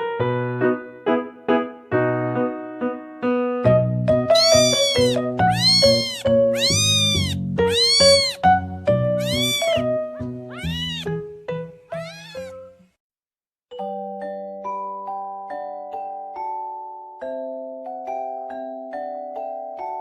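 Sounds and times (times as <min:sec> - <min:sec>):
cat meowing: 0:04.3 - 0:08.5, 0:09.2 - 0:11.2, 0:11.9 - 0:12.7
keyboard music: 0:04.3 - 0:12.5.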